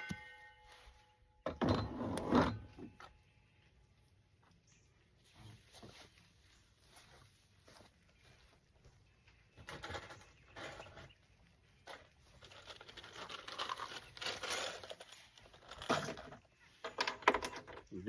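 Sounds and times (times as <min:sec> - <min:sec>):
hands rustling materials: 0:05.2 - 0:09.4.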